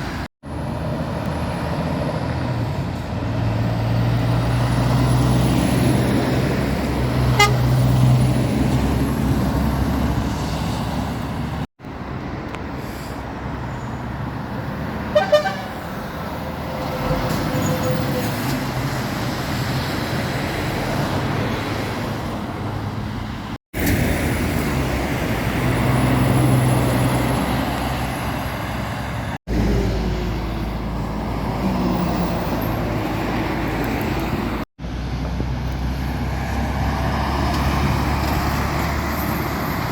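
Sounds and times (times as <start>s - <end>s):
lorries passing on road: 0.0s - 39.9s
short horn toot: 7.4s - 7.7s, 15.2s - 15.8s.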